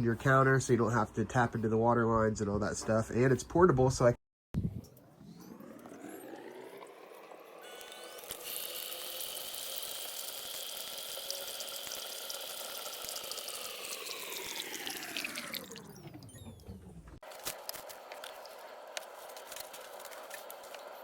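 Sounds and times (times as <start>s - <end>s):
pump humming: 5.5s - 16.8s
water running into a cup: 8.2s - 16.2s.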